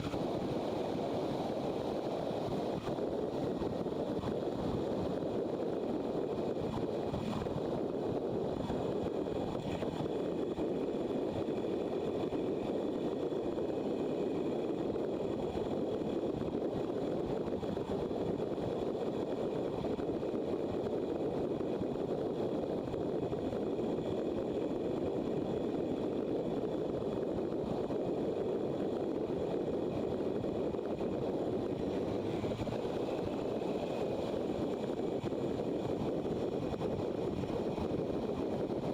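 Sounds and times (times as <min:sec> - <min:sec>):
wind rush: 0:00.0 - 0:38.9
road noise: 0:27.4 - 0:38.9.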